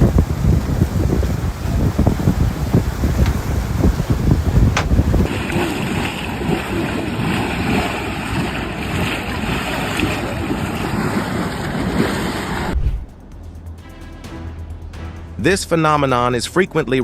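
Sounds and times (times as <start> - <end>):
rush of the sea: 0.0 - 13.1
wind buffeting microphone: 0.0 - 13.2.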